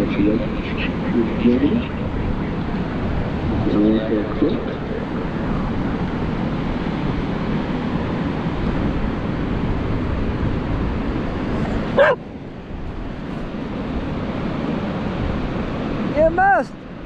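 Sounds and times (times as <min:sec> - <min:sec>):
steady rushing noise: 0:00.0 - 0:17.0
dog barking: 0:11.6 - 0:12.3.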